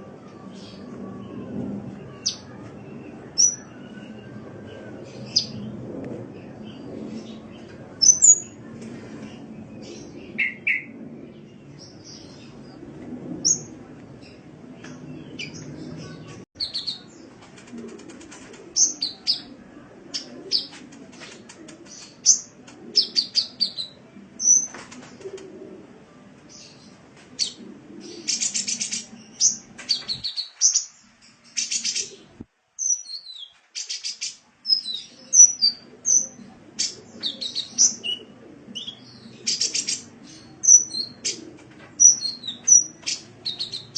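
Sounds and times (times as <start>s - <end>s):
bird chirps and trills: 26.6s - 41.4s.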